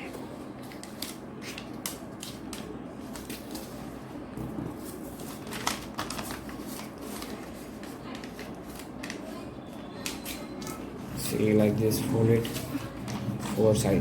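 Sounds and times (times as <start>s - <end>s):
steady background noise: 0.0s - 14.0s
paper being folded and creased: 0.6s - 3.9s, 4.8s - 10.4s.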